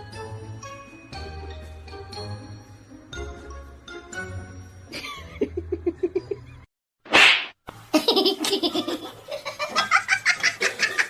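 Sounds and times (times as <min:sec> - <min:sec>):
person laughing: 0:04.9 - 0:06.4.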